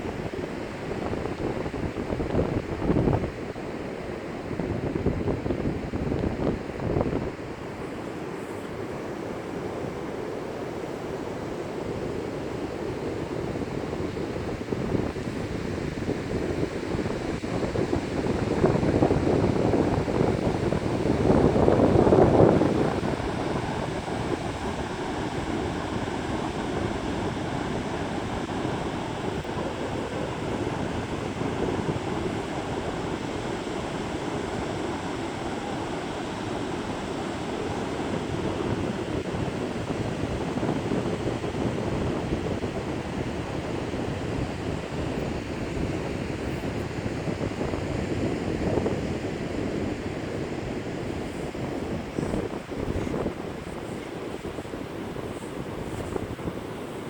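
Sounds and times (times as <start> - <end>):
wind buffeting microphone: 0.0 - 57.0
surf rushing: 7.4 - 42.0.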